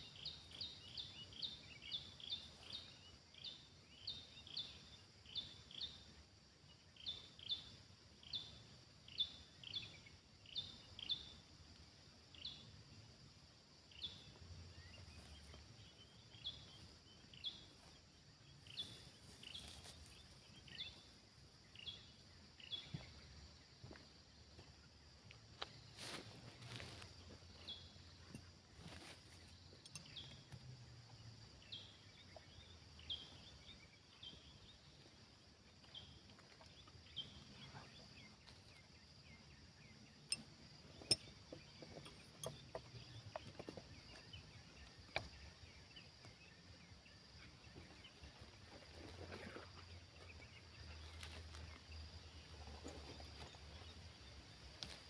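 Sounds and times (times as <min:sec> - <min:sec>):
small bird chirping: 0:00.0 - 0:06.1, 0:26.6 - 0:35.1, 0:35.7 - 0:55.0.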